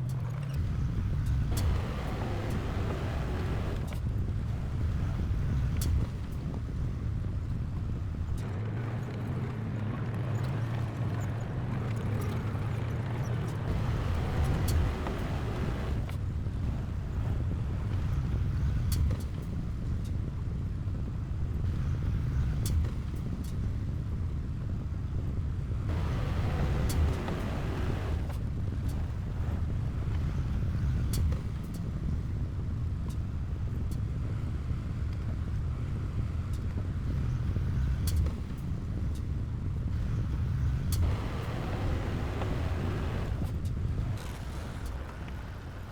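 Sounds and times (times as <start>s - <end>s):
heavy diesel engine rumble: 13.5s - 17.8s, 25.9s - 30.8s, 40.0s - 45.9s.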